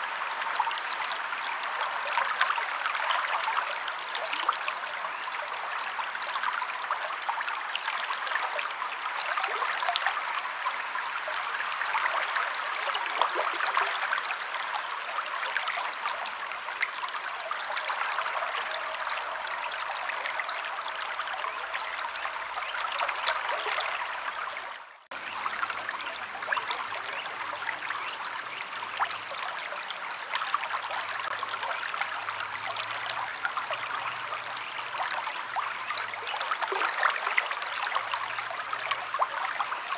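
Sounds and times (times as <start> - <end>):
stream of water babbling: 0.0 - 39.9.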